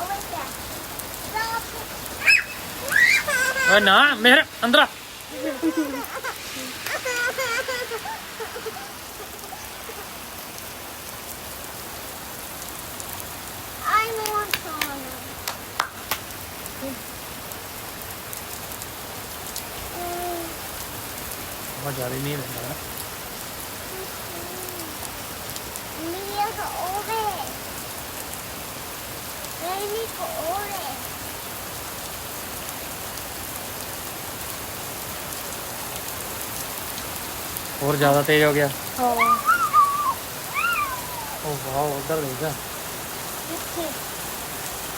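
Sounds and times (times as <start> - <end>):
rain on hard surfaces: 0.0 - 44.9.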